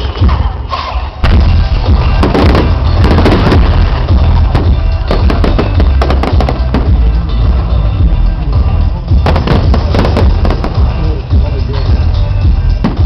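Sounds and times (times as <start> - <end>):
music playing: 0.0 - 13.0
fireworks cracking and banging: 1.2 - 8.0, 8.7 - 11.6, 12.7 - 13.0
steady low rumble: 1.2 - 13.0.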